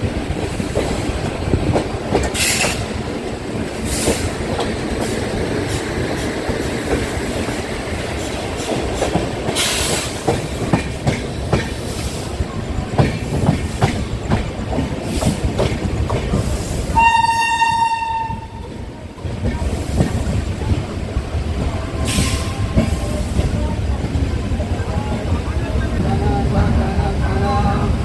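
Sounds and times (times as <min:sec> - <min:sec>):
train rumbling and clattering: 0:00.0 - 0:28.0
train horn: 0:17.0 - 0:18.7.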